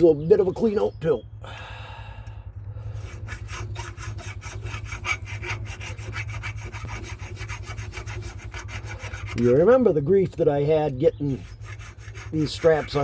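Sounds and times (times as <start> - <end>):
file rasping on metal: 2.8 - 13.0.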